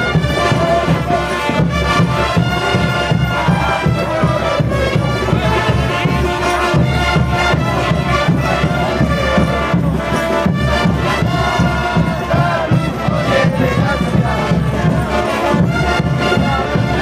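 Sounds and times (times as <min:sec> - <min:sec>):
brass melody: 0:00.0 - 0:17.0
steady drum beat: 0:00.0 - 0:17.0.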